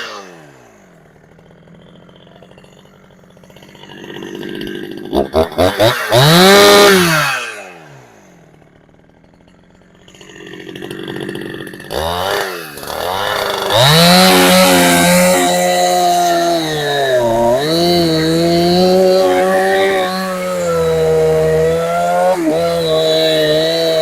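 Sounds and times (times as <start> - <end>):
chainsaw engine revving: 0.0 - 24.0.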